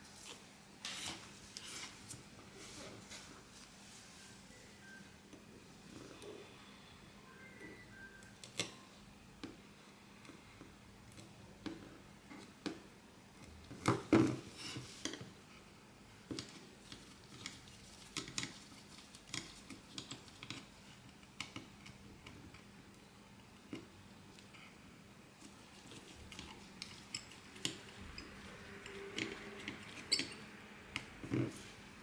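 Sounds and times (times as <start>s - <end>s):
small tools clicking and tapping: 16.3s - 23.0s, 25.9s - 31.6s.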